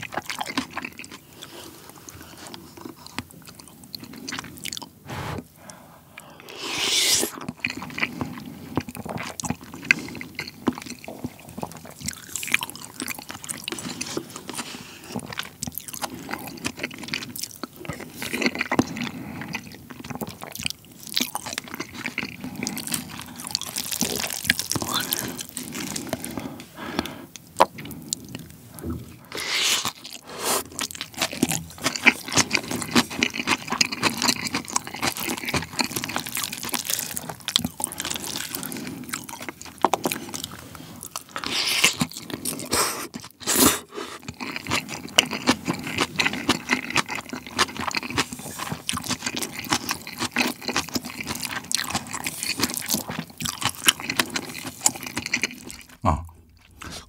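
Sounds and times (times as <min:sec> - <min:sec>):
chewing and crunching: 0:00.0 - 0:06.5, 0:07.3 - 0:57.0
plastic spoon scraping bowl: 0:06.5 - 0:07.4.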